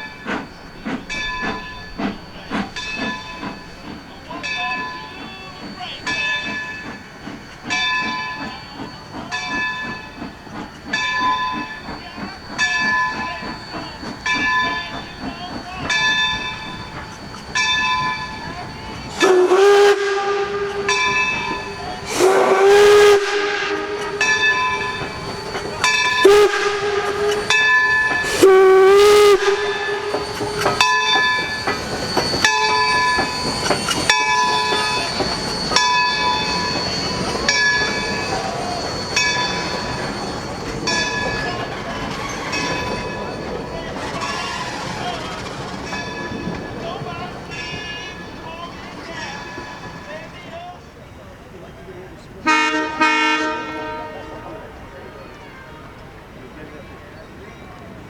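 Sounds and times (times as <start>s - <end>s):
locomotive bell ringing: 0.0s - 58.0s
steam whistle blasts: 11.2s - 50.3s, 52.4s - 56.2s.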